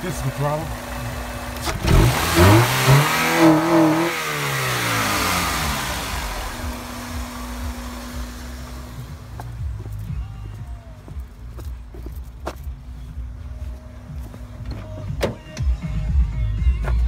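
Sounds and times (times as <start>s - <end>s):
car engine revving: 0.0s - 10.6s.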